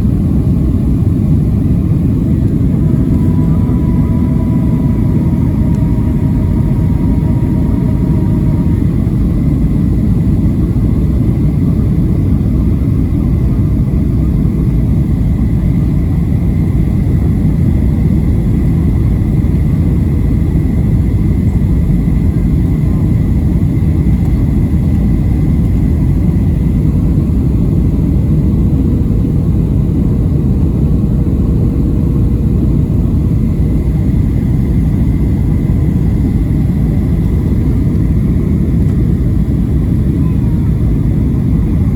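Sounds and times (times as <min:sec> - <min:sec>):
airplane cabin rumble: 0:00.0 - 0:41.9
faint thin whine: 0:00.7 - 0:12.5.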